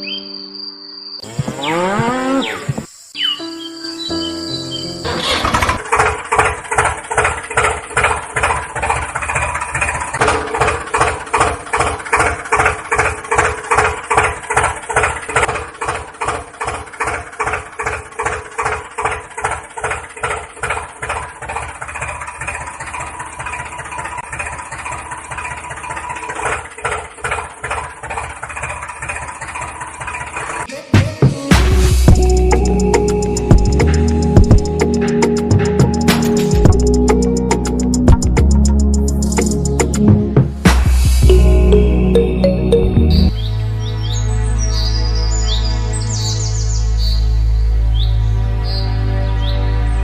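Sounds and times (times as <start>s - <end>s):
tractor engine idling: 4.5s - 30.7s, 31.8s - 43.4s.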